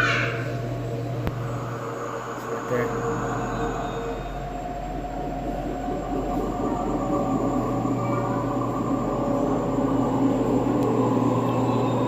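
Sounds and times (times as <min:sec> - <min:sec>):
mechanical droning hum: 0:00.0 - 0:12.0.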